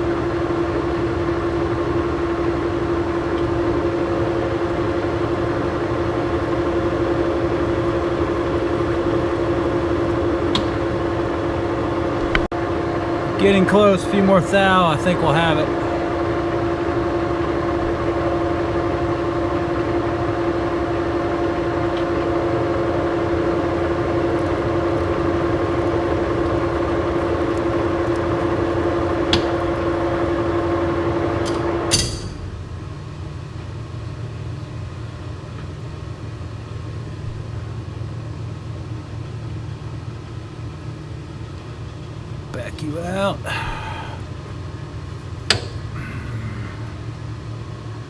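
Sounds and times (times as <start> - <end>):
lathe gear whine: 0.0 - 35.4
low machine hum: 0.0 - 48.0.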